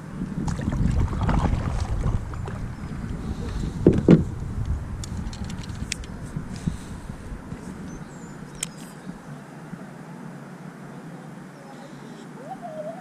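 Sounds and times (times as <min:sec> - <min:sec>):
low rumble: 0:00.0 - 0:09.3
sharp knocks on kayak hull: 0:03.8 - 0:04.3.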